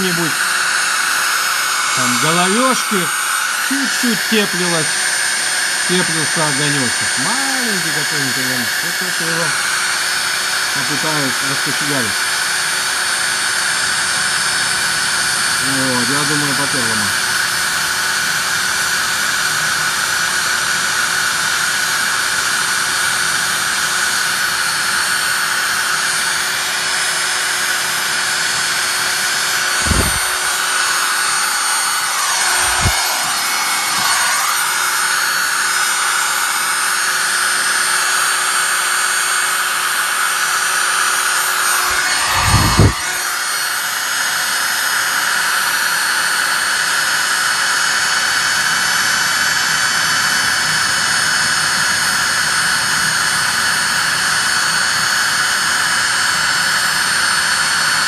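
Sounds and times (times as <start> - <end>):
electric drill running: 0.0 - 58.0
low thumps: 29.8 - 30.4.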